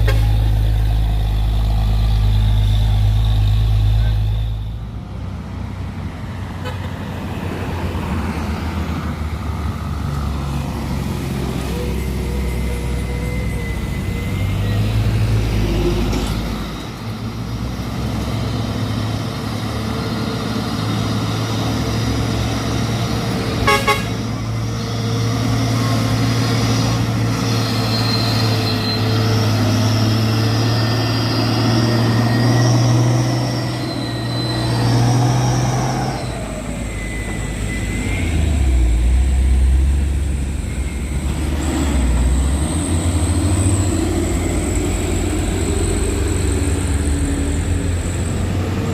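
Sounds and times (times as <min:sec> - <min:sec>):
truck horn toot: 0:00.0 - 0:00.5, 0:23.6 - 0:24.4
truck diesel engine drone: 0:00.0 - 0:48.9.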